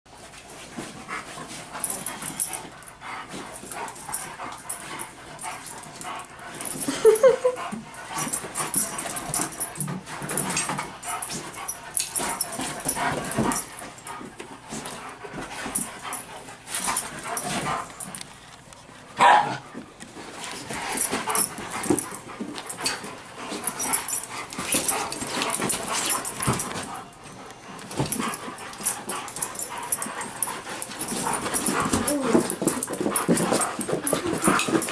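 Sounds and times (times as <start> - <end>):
dogs scuffling: 0.2 - 34.9
dogs yipping and whining: 1.7 - 18.1, 20.5 - 34.9
dog crying: 32.0 - 32.6.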